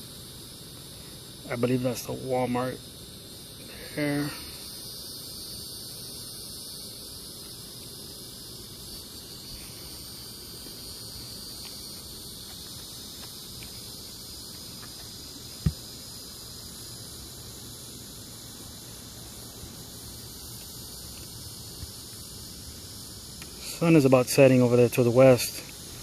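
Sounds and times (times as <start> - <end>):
insects chirring: 0.0 - 26.0
low thump: 15.6 - 15.8.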